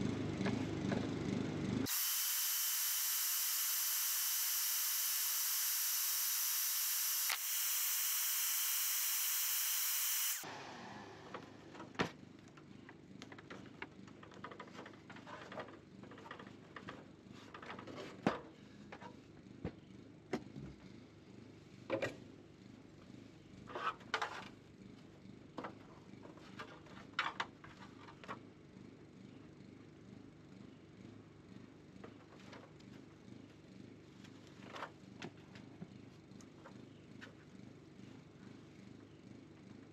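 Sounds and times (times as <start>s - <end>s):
power tool whining: 1.9s - 11.4s.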